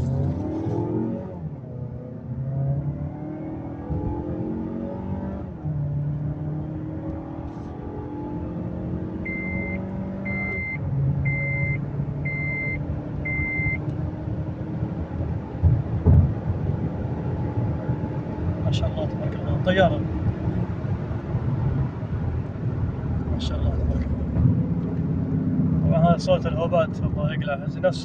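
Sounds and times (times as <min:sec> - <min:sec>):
car engine accelerating: 0:00.0 - 0:28.0
in-car warning chime beeping: 0:09.2 - 0:13.9
low thud: 0:15.6 - 0:16.5.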